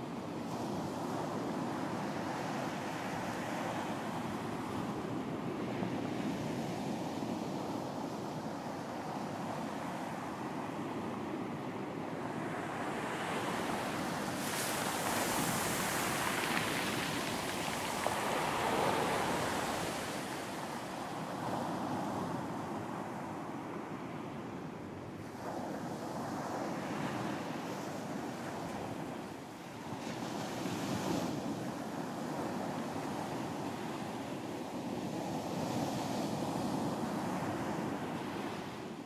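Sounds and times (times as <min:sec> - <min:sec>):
ocean surf breaking: 0:12.5 - 0:21.3.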